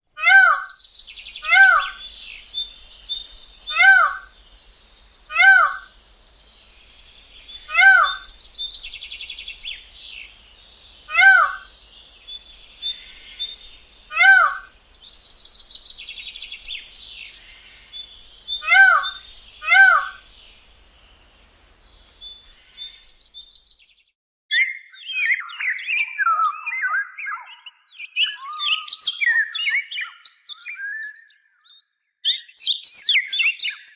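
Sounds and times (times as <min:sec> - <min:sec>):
high twittering of small birds: 0:00.2 - 0:33.9
loud short bird call: 0:01.4 - 0:02.0, 0:03.6 - 0:04.3, 0:05.3 - 0:05.9, 0:07.7 - 0:08.3, 0:11.1 - 0:11.7, 0:14.1 - 0:14.7, 0:18.6 - 0:20.2
lower bird chattering: 0:01.4 - 0:04.3, 0:05.3 - 0:05.9, 0:07.5 - 0:10.1, 0:11.0 - 0:11.7, 0:12.7 - 0:14.8, 0:18.6 - 0:20.2.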